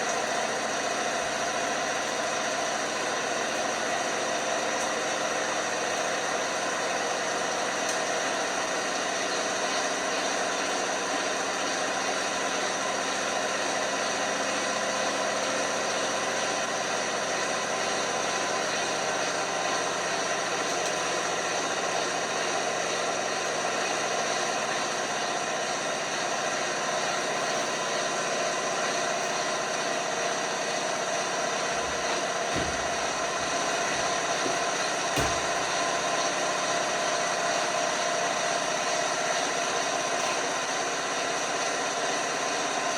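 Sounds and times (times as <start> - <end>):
washing machine whirring: 0.0 - 42.9.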